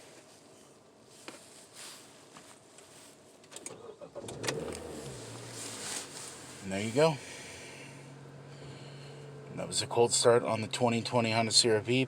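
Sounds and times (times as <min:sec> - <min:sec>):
car engine idling: 0:03.8 - 0:12.0.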